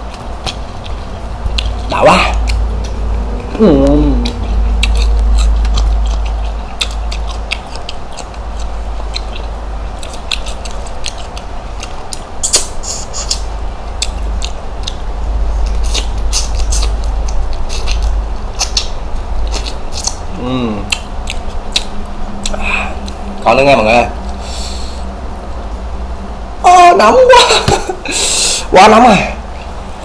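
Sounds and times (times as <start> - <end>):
steady low rumble: 0.0 - 30.0
shrimp shells cracking and chewed: 4.2 - 23.2.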